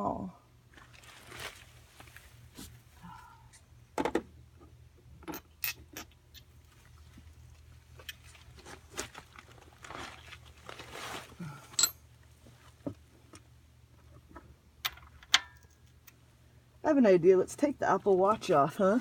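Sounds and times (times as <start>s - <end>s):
rustling: 0.7s - 3.1s, 6.6s - 12.8s
metal sockets and wrench clinking: 5.3s - 6.1s, 11.8s - 12.0s.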